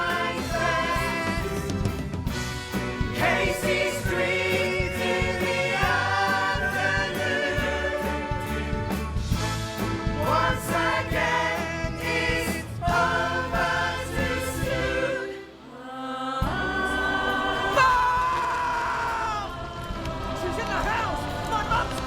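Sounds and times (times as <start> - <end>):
instrumental backing: 0.0 - 15.5
choir singing: 0.0 - 22.0.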